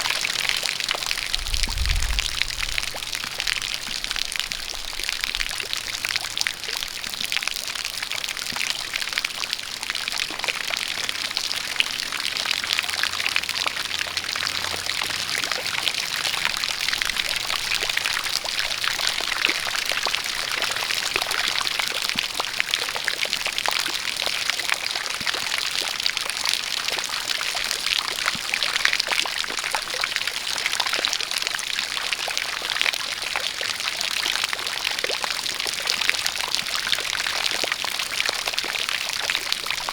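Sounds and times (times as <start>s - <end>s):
rain rushing: 0.0s - 22.8s
crackling drips: 0.0s - 39.9s.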